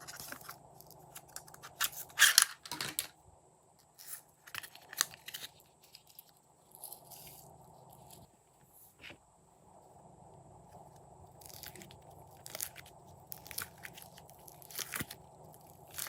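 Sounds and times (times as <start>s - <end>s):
slime crackling and popping: 11.3s - 16.0s.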